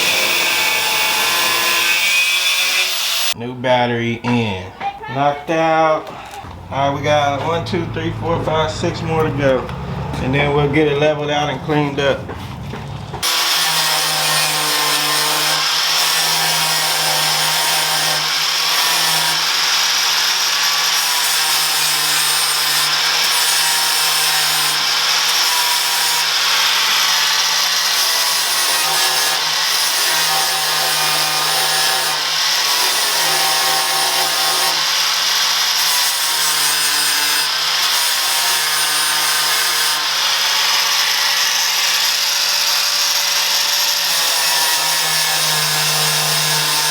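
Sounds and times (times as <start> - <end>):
angle grinder grinding metal: 0.0 - 3.4, 13.2 - 46.9.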